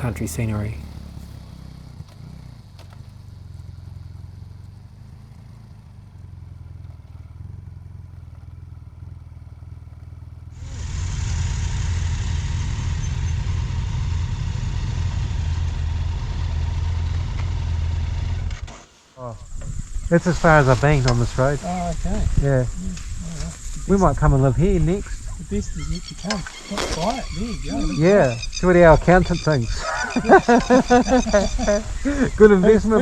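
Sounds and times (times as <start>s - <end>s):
motorcycle engine running: 0.0s - 33.0s
wind rush: 19.3s - 25.6s.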